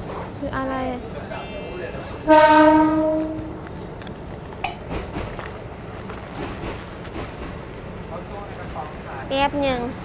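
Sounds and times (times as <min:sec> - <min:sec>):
train carriage running noise: 0:00.0 - 0:10.0
loud pitched tone: 0:01.2 - 0:03.4.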